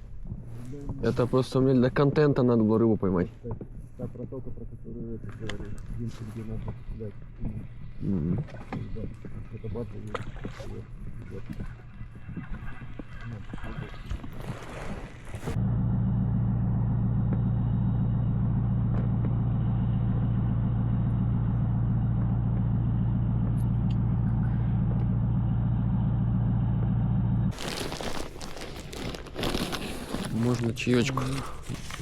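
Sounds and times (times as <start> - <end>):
motorboat engine humming: 3.6 - 28.0.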